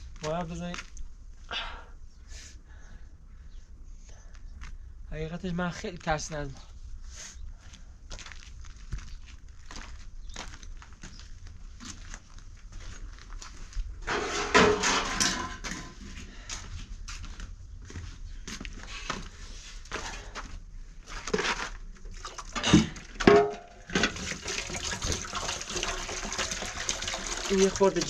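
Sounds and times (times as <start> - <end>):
stones and cement knocking and scraping: 21.2 - 28.0.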